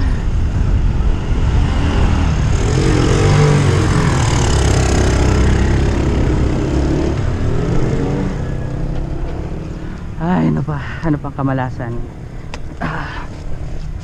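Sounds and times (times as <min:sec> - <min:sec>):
wind buffeting microphone: 0:00.0 - 0:10.2
vehicle engine passing: 0:00.0 - 0:11.0.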